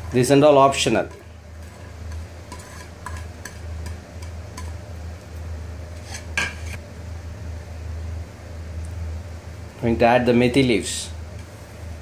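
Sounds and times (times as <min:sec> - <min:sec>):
stirring thick batter: 0:00.0 - 0:04.7
low steady hum: 0:00.0 - 0:12.0.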